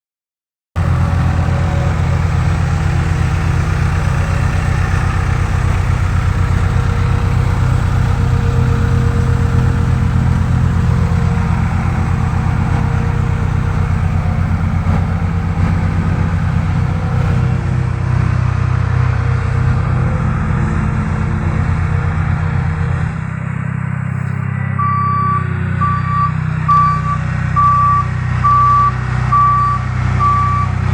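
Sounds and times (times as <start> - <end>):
diesel engine running: 0.8 - 30.9.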